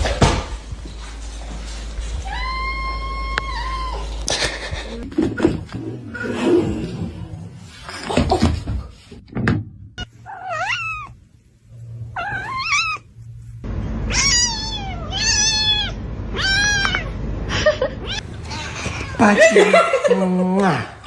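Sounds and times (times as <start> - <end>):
cat meowing: 2.2 - 4.2, 10.0 - 11.2, 12.1 - 13.1, 14.1 - 17.2.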